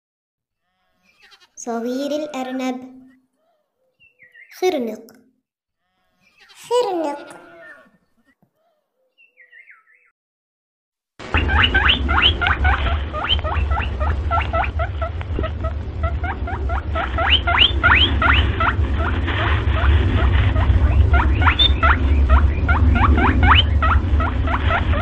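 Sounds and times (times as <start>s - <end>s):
small animal squeaking: 1.1s - 4.5s, 6.2s - 9.5s, 11.4s - 18.8s, 19.8s - 25.0s
steady low hum: 11.2s - 25.0s.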